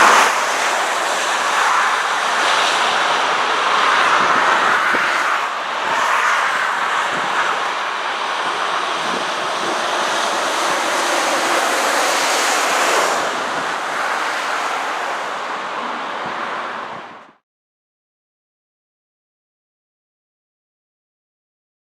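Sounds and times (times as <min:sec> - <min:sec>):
motorway traffic tyre roar: 0:00.0 - 0:17.4
wind on microphone: 0:00.0 - 0:17.4.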